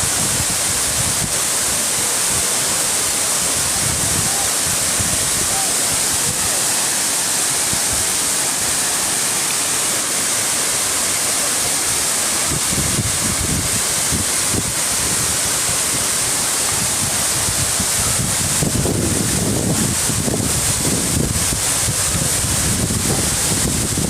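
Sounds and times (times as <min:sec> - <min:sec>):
waterfall rushing: 0:00.0 - 0:24.0
wind buffeting microphone: 0:12.5 - 0:24.0.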